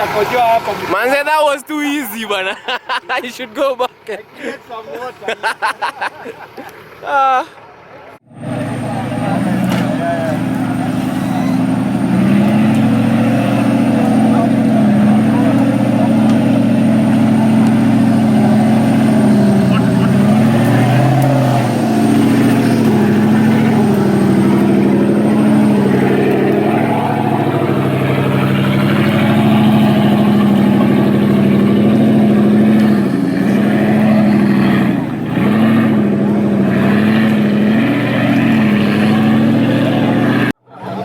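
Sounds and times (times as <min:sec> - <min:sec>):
engine revving: 0:08.3 - 0:41.0.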